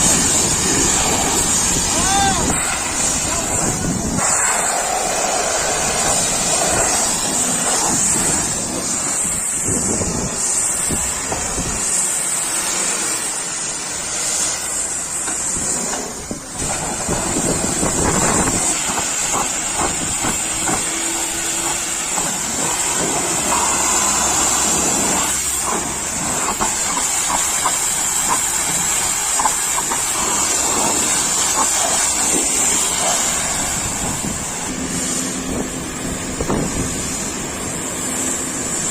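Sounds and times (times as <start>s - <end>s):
pressure washer spray hissing: 0.0s - 38.9s.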